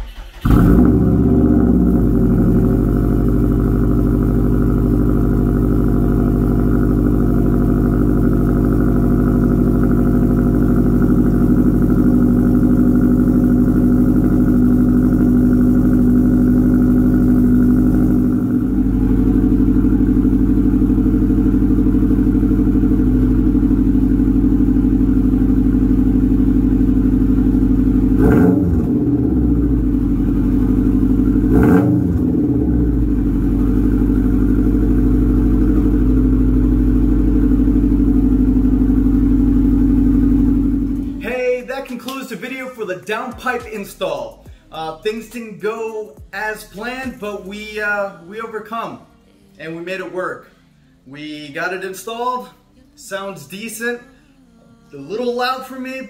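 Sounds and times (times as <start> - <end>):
engine throttle blips: 0.0 - 41.7
car engine idling: 0.0 - 41.9.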